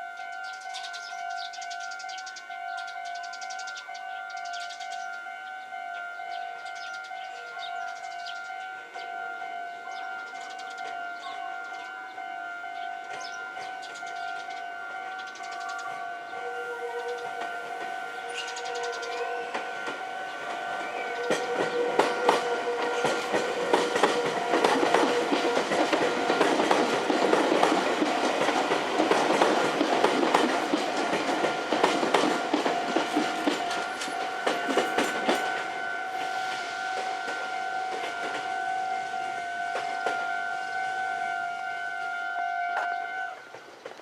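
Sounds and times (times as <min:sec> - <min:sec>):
train running on rails: 0:00.0 - 0:44.0
wheels clicking over rail joints: 0:17.0 - 0:35.7.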